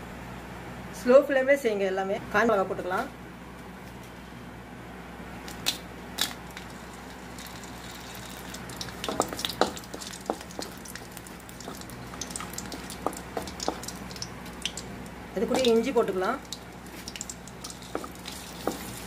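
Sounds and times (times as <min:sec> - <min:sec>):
chillies crackling in oil: 0:05.6 - 0:19.0.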